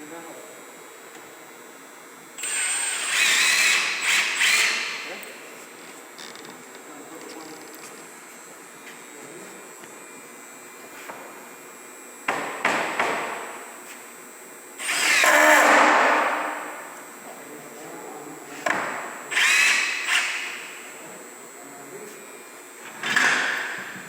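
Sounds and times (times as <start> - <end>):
power driver driving screws: 2.4 - 5.1, 14.8 - 15.9, 19.3 - 20.5.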